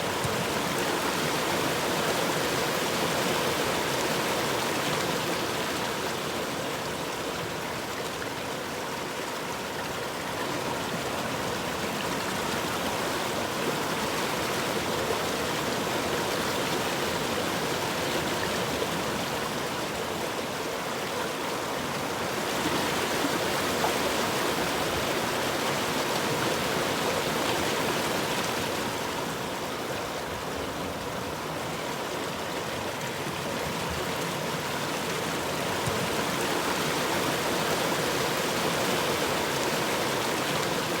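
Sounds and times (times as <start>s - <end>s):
river water rushing: 0.0s - 41.0s.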